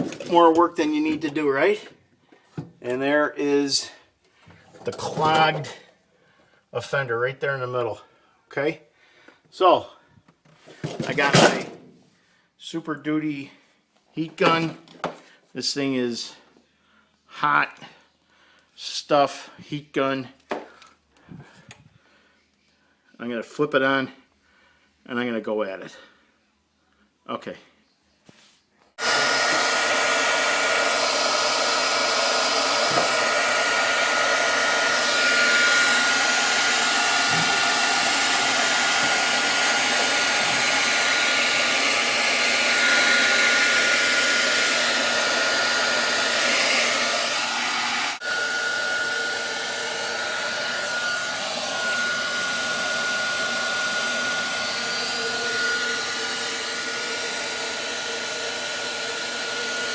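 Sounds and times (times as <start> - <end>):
heat gun blowing with high whine: 29.0 - 59.9.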